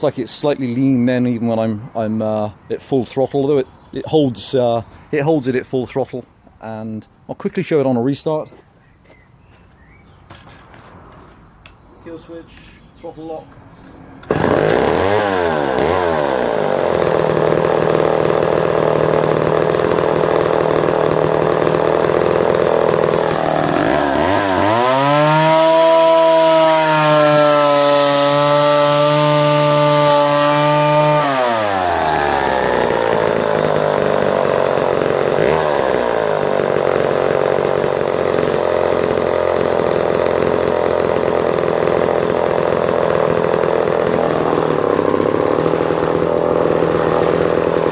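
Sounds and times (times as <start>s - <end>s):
chainsaw idling and revving: 14.1s - 47.9s.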